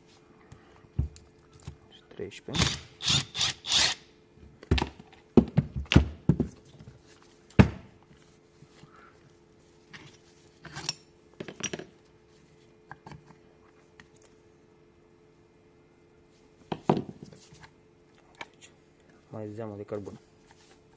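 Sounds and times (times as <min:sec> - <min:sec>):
metal tools knocking and clinking: 0:10.7 - 0:11.9.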